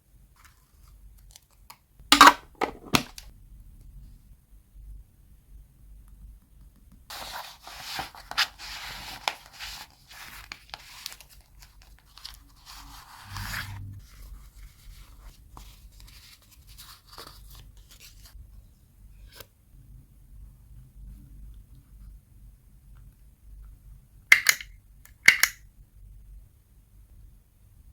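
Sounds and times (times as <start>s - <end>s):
paper rustling: 7.1s - 18.4s
single click: 25.3s - 25.6s.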